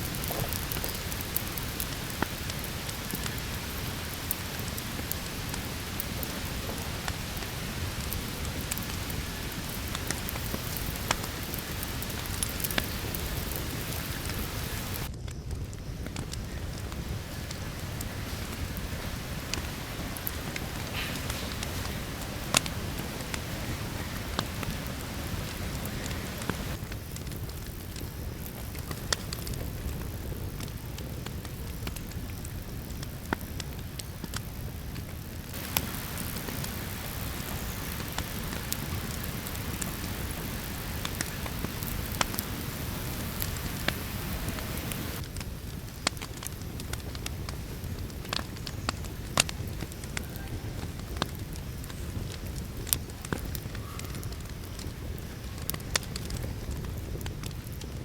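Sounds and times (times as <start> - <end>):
bright hiss: 0.0 - 15.1, 16.0 - 27.2, 35.4 - 45.2
steady low rumble: 0.0 - 26.8, 35.2 - 45.3
campfire crackling and popping: 0.0 - 58.0.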